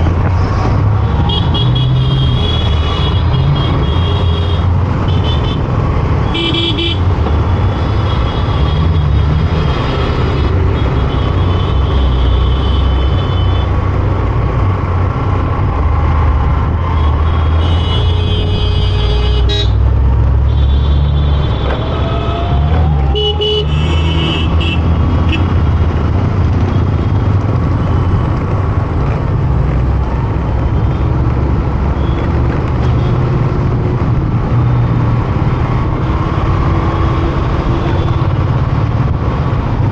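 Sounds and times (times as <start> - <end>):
traffic engines and road noise: 0.0 - 39.9
vehicle horns honking: 17.3 - 19.8, 23.1 - 25.5.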